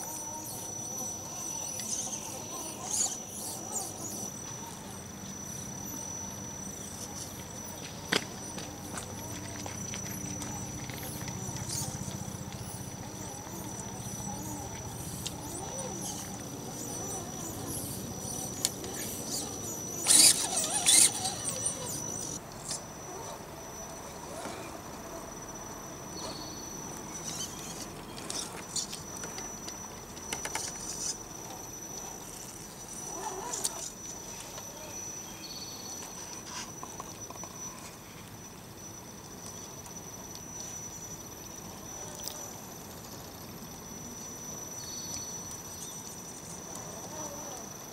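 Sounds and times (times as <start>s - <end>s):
electric motor whining: 10.3s - 22.4s.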